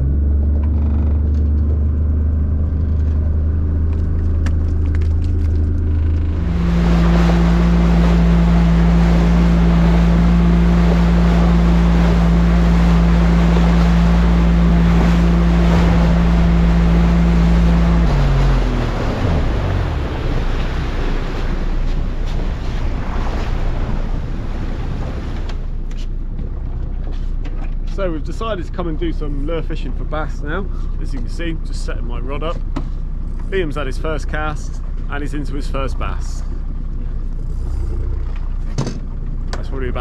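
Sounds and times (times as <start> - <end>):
rush of wind and water: 0.0 - 30.2
boat engine running: 0.0 - 40.0.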